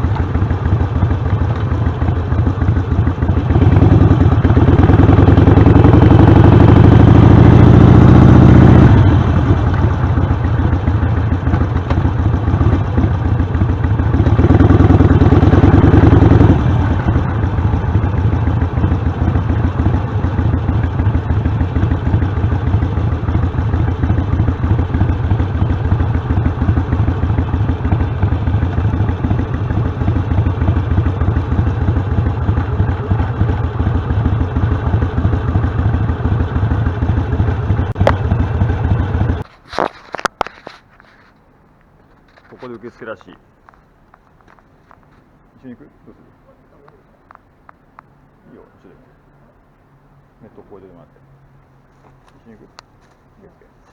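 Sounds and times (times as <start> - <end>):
motorcycle engine accelerating: 0.0 - 40.2.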